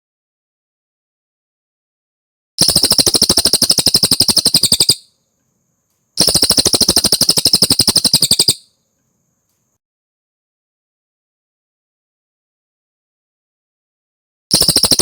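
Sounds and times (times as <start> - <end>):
bird trilling high notes: 7.7 - 8.6.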